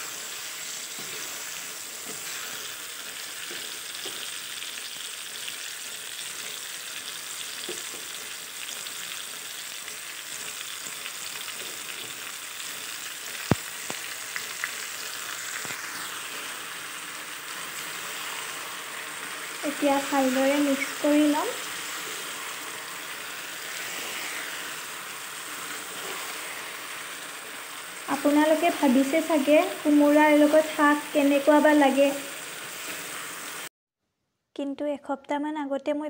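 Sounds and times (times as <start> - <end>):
vegetables sizzling in hot oil: 0.0 - 33.7.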